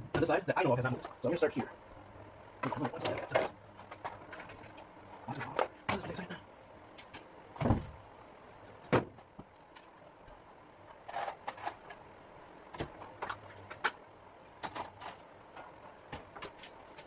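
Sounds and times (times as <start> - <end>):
tools and metal parts clinking: 2.8 - 6.3, 11.0 - 12.0, 14.6 - 17.0.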